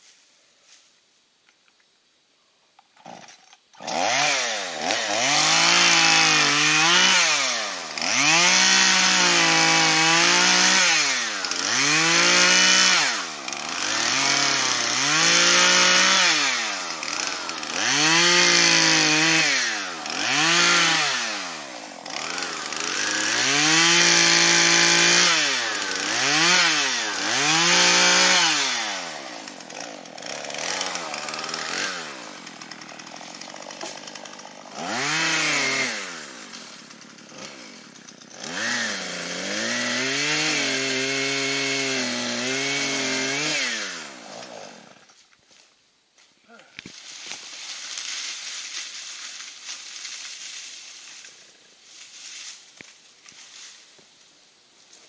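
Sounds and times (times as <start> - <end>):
chainsaw revving: 3.0 - 45.1.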